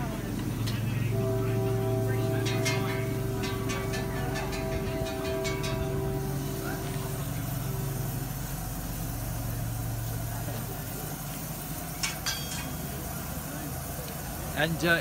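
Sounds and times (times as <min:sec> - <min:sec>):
low engine hum: 0:00.0 - 0:15.0
held tone: 0:00.8 - 0:10.3.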